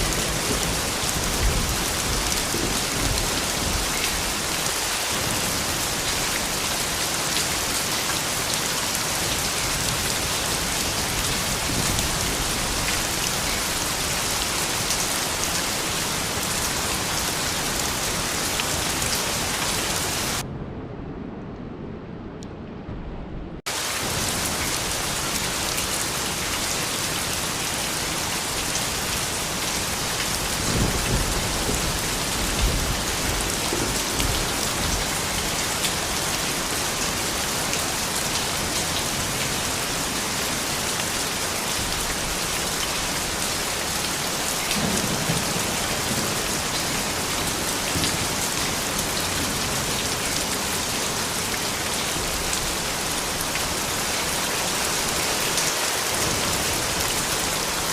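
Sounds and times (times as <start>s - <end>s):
thunder rumbling: 0.0s - 6.6s, 8.4s - 26.4s, 29.3s - 37.4s, 44.3s - 51.3s
steady rain: 0.0s - 20.5s, 23.6s - 57.9s.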